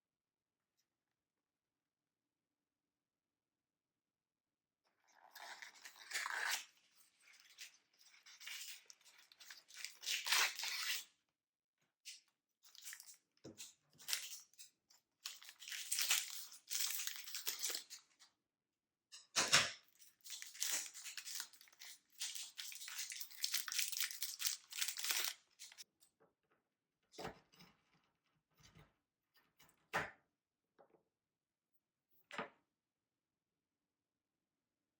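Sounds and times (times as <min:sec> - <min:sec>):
packaging crinkling and tearing: 0:08.4 - 0:11.0, 0:15.2 - 0:18.0, 0:20.3 - 0:25.8.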